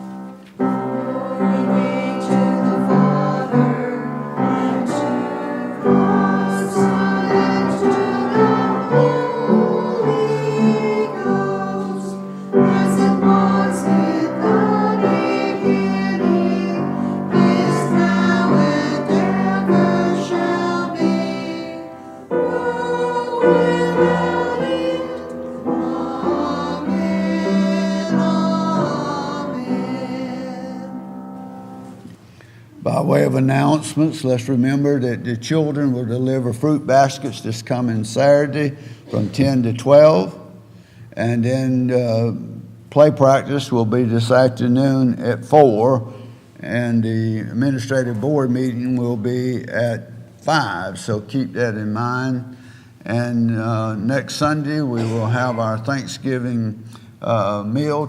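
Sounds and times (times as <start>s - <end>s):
keyboard sustained chords: 0.0s - 32.0s, 54.7s - 56.4s
congregation singing in unison: 0.0s - 35.0s, 53.0s - 58.0s.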